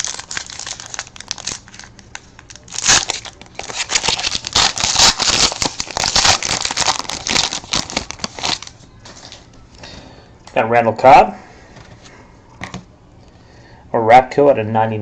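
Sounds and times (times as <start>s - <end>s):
plastic wrapping tearing and crinkling: 0.0s - 9.5s.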